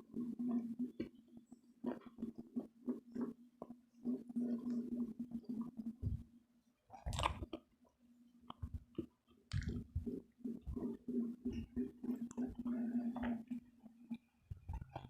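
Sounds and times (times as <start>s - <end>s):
wet mouth clicks: 6.9s - 7.6s, 8.5s - 13.5s
chewing crispy food: 6.9s - 7.8s, 8.5s - 15.0s.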